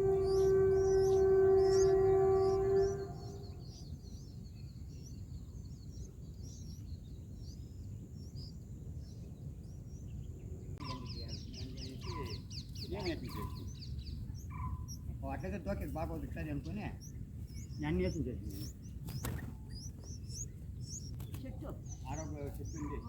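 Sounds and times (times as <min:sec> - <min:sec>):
long steady horn tone: 0:00.0 - 0:04.2
birds chirping: 0:00.0 - 0:23.0
high insect hum: 0:00.0 - 0:23.0
rapid high chirping: 0:10.8 - 0:23.0.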